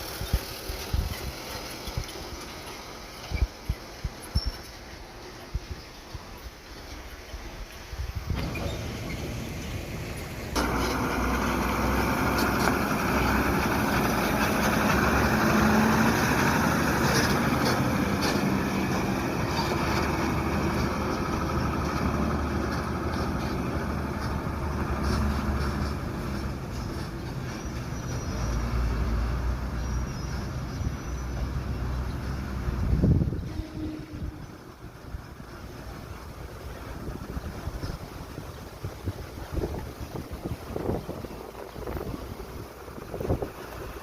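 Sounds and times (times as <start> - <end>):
truck body rattling: 8.3 - 15.8
diesel truck engine running hard: 8.3 - 44.0.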